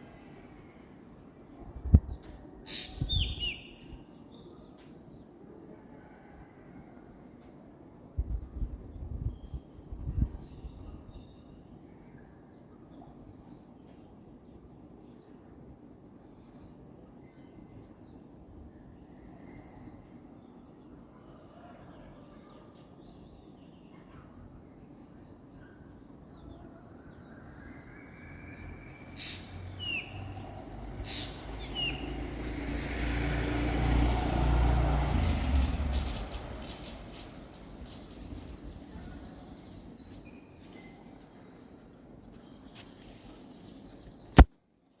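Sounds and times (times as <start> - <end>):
birds chirping: 2.7 - 4.6, 28.6 - 32.4
high insect drone: 23.0 - 43.6
vehicle rumble approaching: 29.4 - 39.5.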